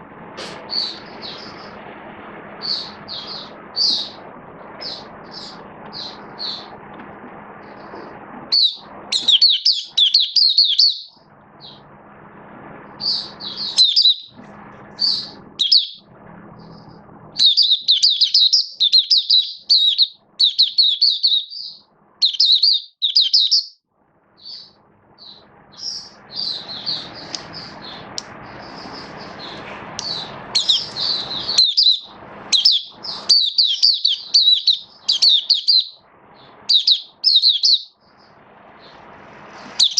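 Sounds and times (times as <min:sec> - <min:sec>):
bird twittering: 0:00.7 - 0:01.8, 0:02.6 - 0:04.2, 0:04.8 - 0:06.8, 0:08.5 - 0:11.8, 0:13.0 - 0:14.4, 0:15.0 - 0:23.8, 0:24.4 - 0:39.0.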